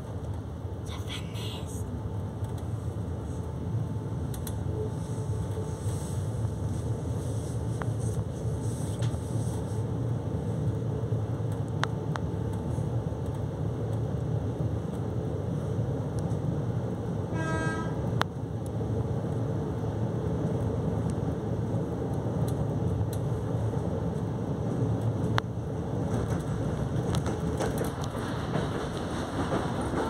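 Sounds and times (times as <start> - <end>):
train rumbling: 0.0 - 30.0
train clacks: 24.2 - 30.0.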